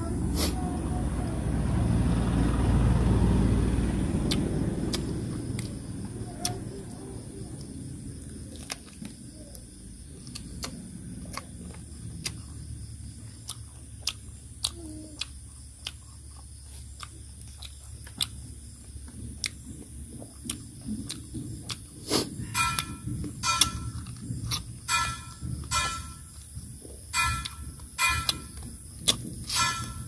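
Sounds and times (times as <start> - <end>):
wet chewing and lip smacking: 4.2 - 5.8, 6.4 - 22.4, 24.0 - 24.8, 28.6 - 29.6.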